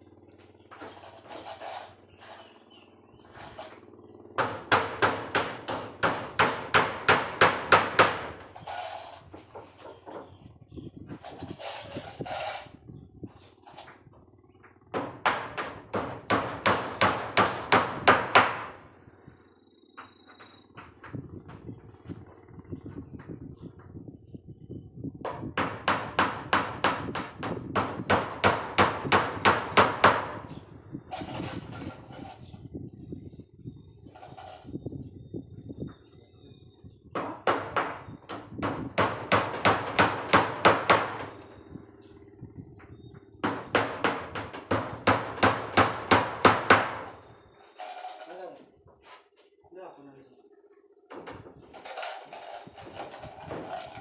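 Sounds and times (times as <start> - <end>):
hammer striking nails: 4.4 - 8.4, 14.9 - 18.8, 25.3 - 30.5, 37.2 - 41.4, 43.4 - 47.2.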